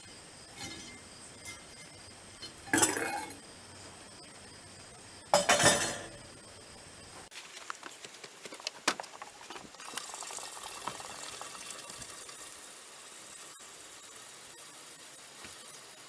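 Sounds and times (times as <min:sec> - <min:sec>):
water pouring into tank: 0:07.4 - 0:14.5.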